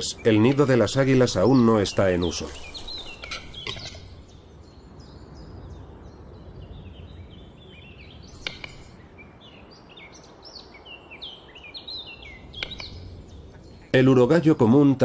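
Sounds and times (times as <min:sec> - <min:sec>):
low background rumble: 0:00.0 - 0:15.0
small birds chirping: 0:00.0 - 0:15.0
sharp click: 0:08.4 - 0:08.9, 0:12.6 - 0:13.0.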